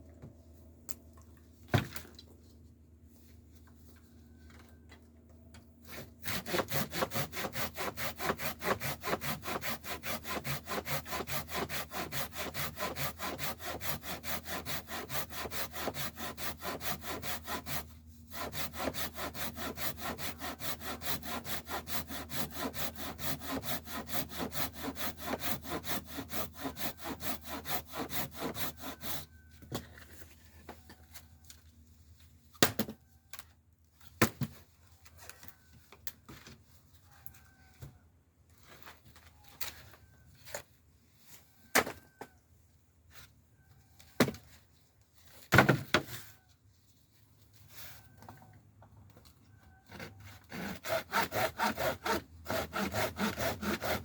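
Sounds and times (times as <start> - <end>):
hand saw cutting wood: 5.8 - 29.4, 49.9 - 54.0.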